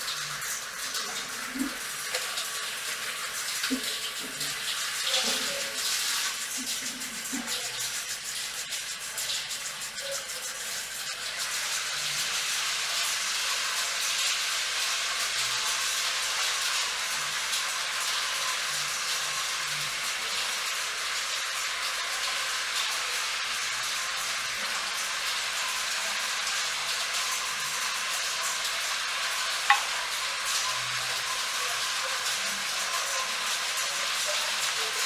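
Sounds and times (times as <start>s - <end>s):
water spray rinsing hair: 0.0s - 35.0s.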